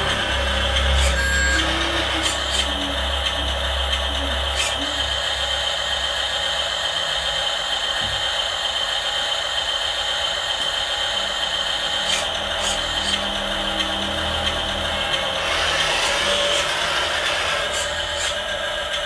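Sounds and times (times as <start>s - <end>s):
toy truck motor whirring: 0.0s - 19.0s.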